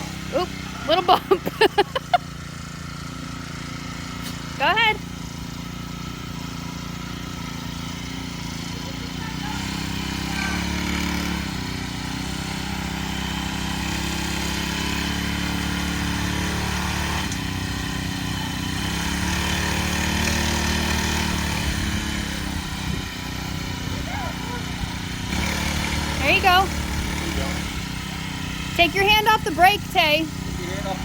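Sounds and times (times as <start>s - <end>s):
small gasoline engine revving: 0.0s - 31.0s.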